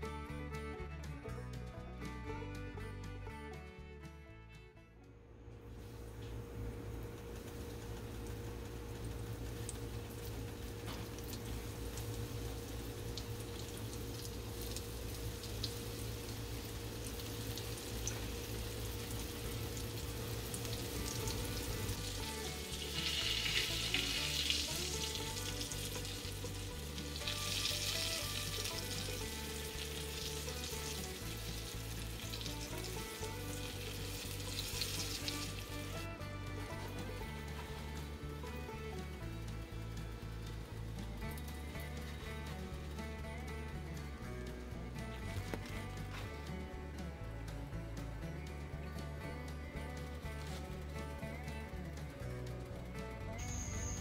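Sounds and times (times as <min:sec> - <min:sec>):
okra sizzling in hot oil: 0:05.7 - 0:46.4.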